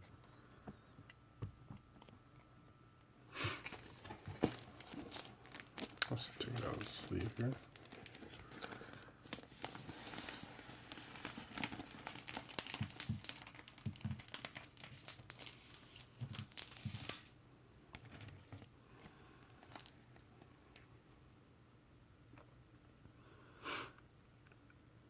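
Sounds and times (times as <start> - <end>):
record sleeve crinkling and rustling: 3.6 - 17.4, 18.0 - 18.7, 19.6 - 20.3.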